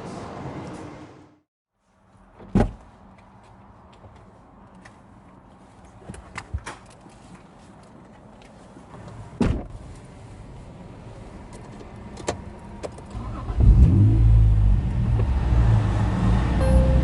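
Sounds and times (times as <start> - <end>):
car engine low rumble: 8.4 - 17.0.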